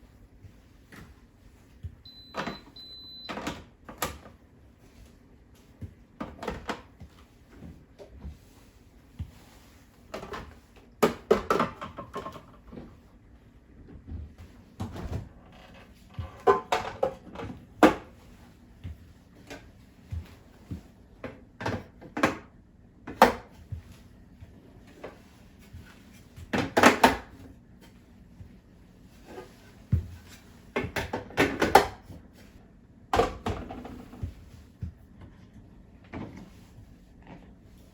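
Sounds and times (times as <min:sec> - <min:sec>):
objects knocking and clattering: 0:10.1 - 0:13.0, 0:16.1 - 0:18.1.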